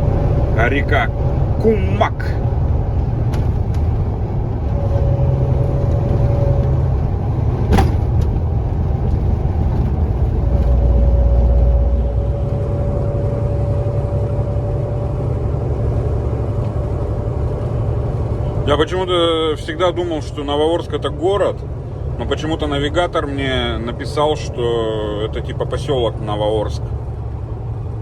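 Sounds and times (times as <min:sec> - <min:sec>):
truck engine and road hum: 0:00.0 - 0:28.0
thin steady whine: 0:04.5 - 0:07.4, 0:10.2 - 0:26.1.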